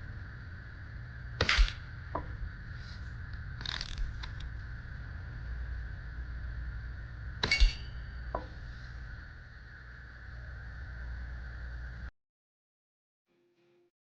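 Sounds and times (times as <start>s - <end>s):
steady background hum: 0.0s - 12.1s
air rifle shot: 1.4s - 1.9s.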